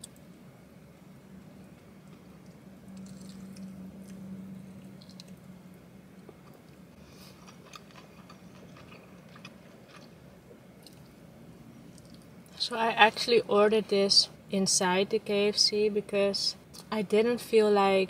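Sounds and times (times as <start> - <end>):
low steady hum: 0.0 - 18.0
wet chewing and crunching: 2.0 - 5.4, 6.4 - 10.2.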